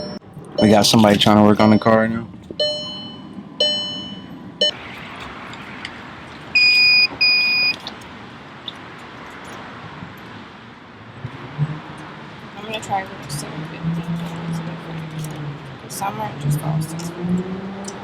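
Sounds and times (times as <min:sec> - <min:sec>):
loud high beeps: 0:00.0 - 0:00.9, 0:02.6 - 0:04.8, 0:06.6 - 0:07.8
steady background noise: 0:00.0 - 0:18.0
electronic tone with overtones: 0:02.6 - 0:07.8.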